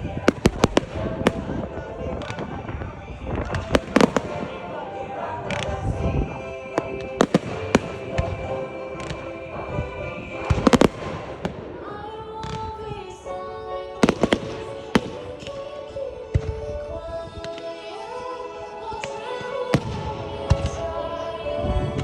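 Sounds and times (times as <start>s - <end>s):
fireworks bangs: 0.0s - 18.2s, 18.8s - 22.0s
music with held notes: 0.0s - 22.0s.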